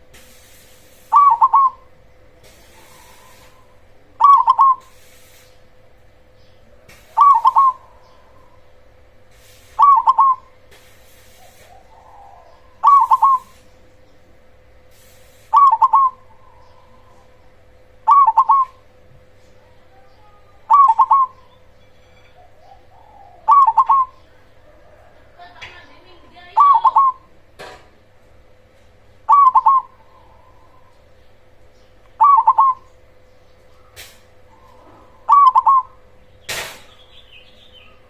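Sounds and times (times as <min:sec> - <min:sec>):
faint steady hum: 0:00.0 - 0:38.0
dove cooing: 0:01.1 - 0:04.9, 0:07.0 - 0:08.8, 0:09.8 - 0:10.6, 0:11.4 - 0:13.7, 0:15.6 - 0:19.0, 0:19.6 - 0:21.6, 0:22.4 - 0:25.7, 0:26.4 - 0:27.3, 0:29.3 - 0:31.2, 0:32.2 - 0:33.0, 0:33.7 - 0:36.2.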